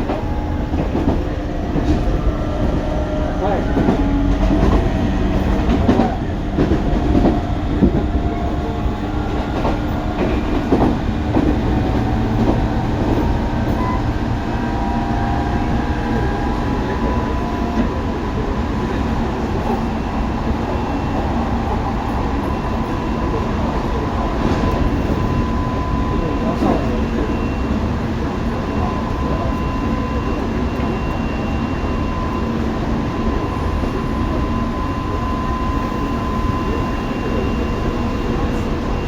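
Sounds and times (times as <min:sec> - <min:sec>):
train rumble and wheel noise: 0:00.0 - 0:39.0.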